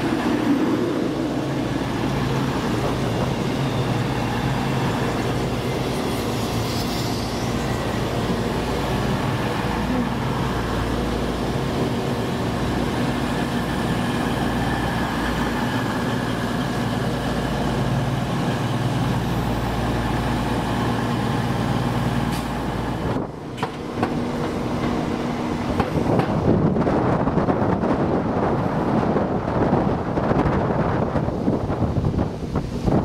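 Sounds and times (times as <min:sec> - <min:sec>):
train running drone: 0:00.0 - 0:33.0
sharp clicks and knocks: 0:23.6 - 0:25.0.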